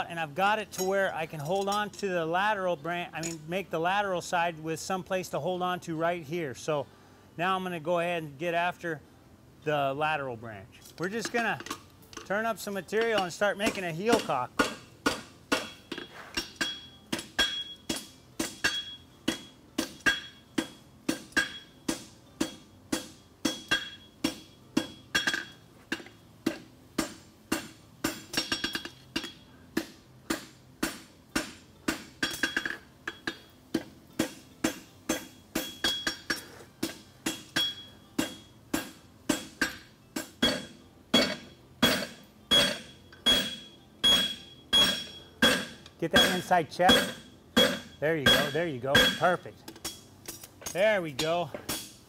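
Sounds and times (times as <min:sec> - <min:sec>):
hammer striking steel on anvil: 0:11.0 - 0:52.0.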